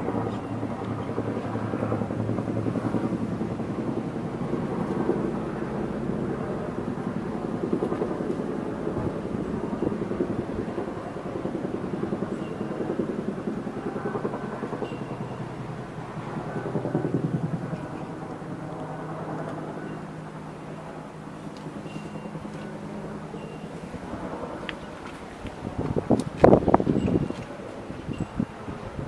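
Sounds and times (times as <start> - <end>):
engine running at low speed: 0.0 - 29.0.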